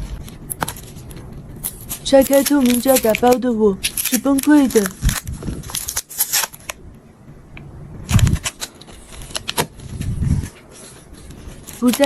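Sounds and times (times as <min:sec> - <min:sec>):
adhesive tape peeling: 0:00.5 - 0:06.8, 0:08.1 - 0:10.2.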